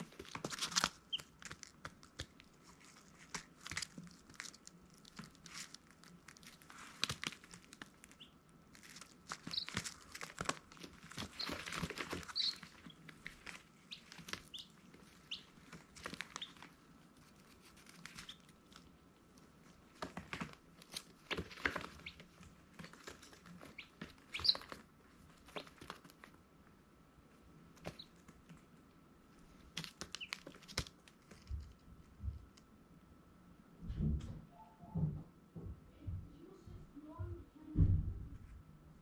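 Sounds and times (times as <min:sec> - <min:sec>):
baby chicks peeping: 0:00.0 - 0:26.4, 0:27.6 - 0:28.8, 0:29.6 - 0:32.6
scratchy rustling and clicking: 0:00.0 - 0:26.4.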